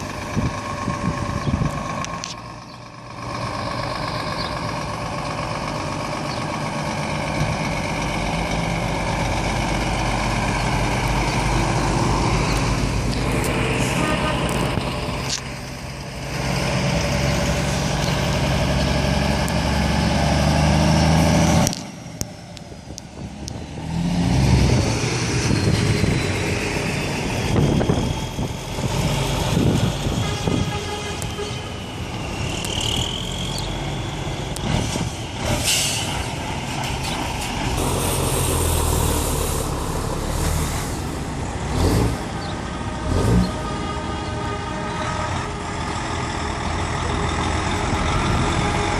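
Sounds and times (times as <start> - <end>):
diesel truck engines pulling away: 0.0 - 48.9.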